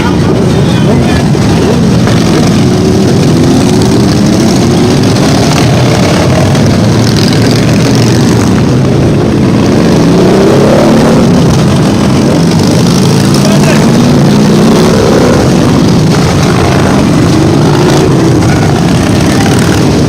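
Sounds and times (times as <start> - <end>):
motorcycle engines revving: 0.0 - 20.0
steady rush of noise: 0.0 - 20.0.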